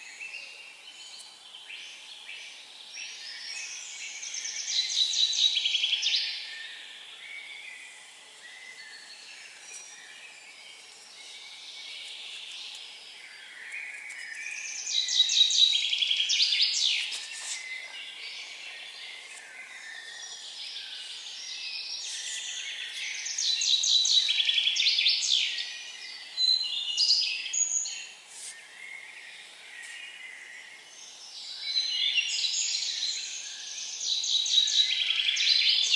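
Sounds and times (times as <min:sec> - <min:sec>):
faint background hiss: 0:00.0 - 0:35.9
songbird singing: 0:00.0 - 0:35.9.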